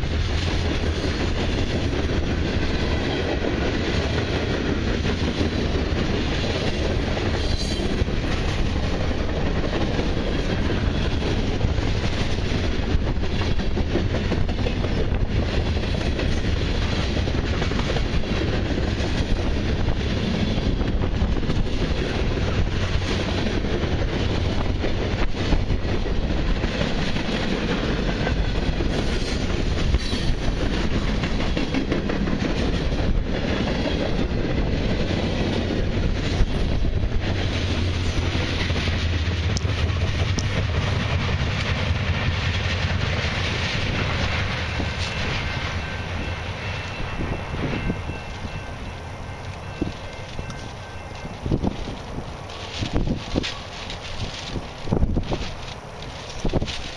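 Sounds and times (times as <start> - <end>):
freight train wheels rumbling: 0.0 - 56.9
short clicks of train wheels: 0.1 - 34.2, 36.2 - 45.8.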